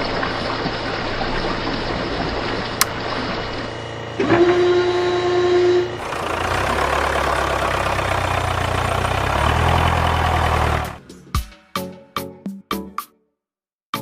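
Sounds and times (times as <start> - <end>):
engine running hum: 0.0 - 11.2
vehicle horn: 4.2 - 6.0.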